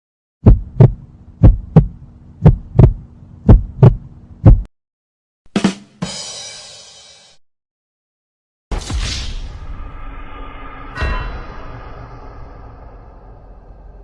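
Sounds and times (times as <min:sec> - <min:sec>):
heartbeat thumps: 0:00.4 - 0:04.7
steady hum: 0:00.4 - 0:04.7
crash: 0:08.7 - 0:14.0
sharp hit: 0:08.7 - 0:14.0.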